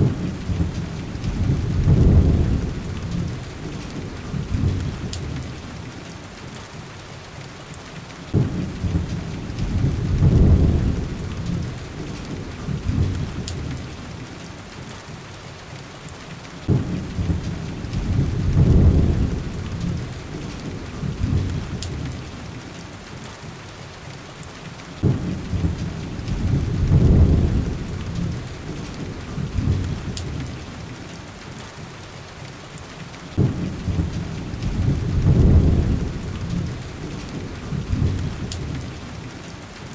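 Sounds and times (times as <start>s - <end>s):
thunder rolling: 0.0s - 5.6s, 8.3s - 14.0s, 16.7s - 22.2s, 25.0s - 30.6s, 33.4s - 39.2s
wood fire crackling: 0.0s - 5.6s, 8.3s - 14.1s, 16.7s - 22.3s, 25.0s - 30.7s, 33.4s - 39.2s
heavy rain: 0.0s - 39.9s.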